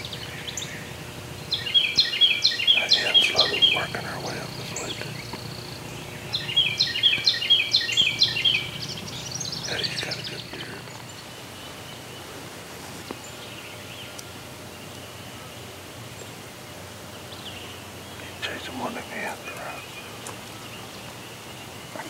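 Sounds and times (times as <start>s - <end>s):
bird chirping rapidly: 0.0s - 12.3s
outdoor background noise: 0.0s - 22.0s.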